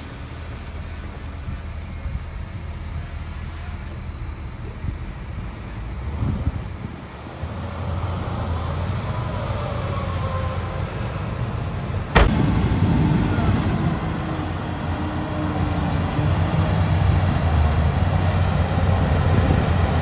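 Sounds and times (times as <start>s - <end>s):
diesel engine running: 0.0s - 20.0s
steady hum: 10.8s - 19.1s.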